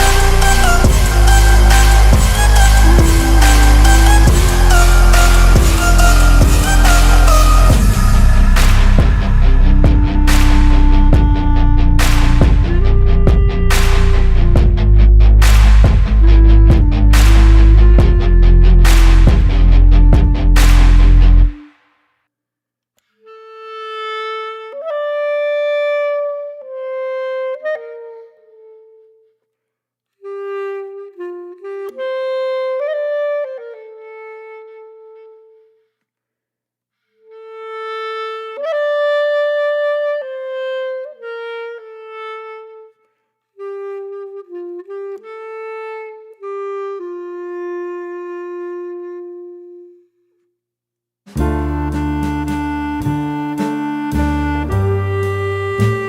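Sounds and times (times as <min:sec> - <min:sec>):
solo reed wind instrument melody: 0:00.0 - 0:15.3, 0:16.1 - 0:20.6, 0:30.2 - 0:35.8, 0:51.4 - 0:56.0.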